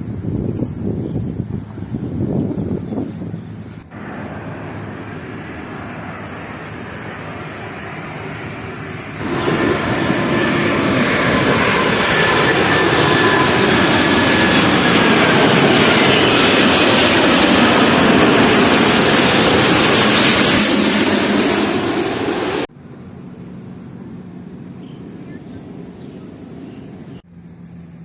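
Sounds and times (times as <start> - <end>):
jet airliner passing overhead: 2.9 - 27.6
whining jet engine tones: 3.9 - 22.7.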